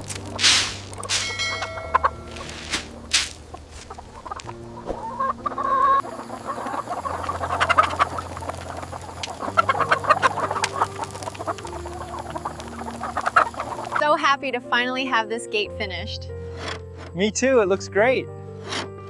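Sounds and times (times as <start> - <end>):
chickens clucking: 0.0 - 14.1.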